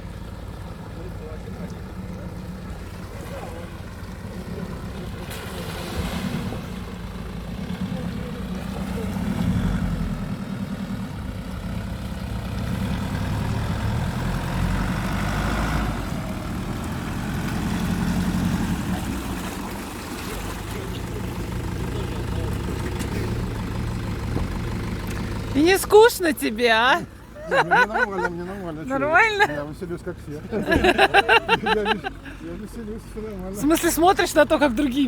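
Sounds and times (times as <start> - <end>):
off-road vehicle engine revving: 0.0 - 35.0.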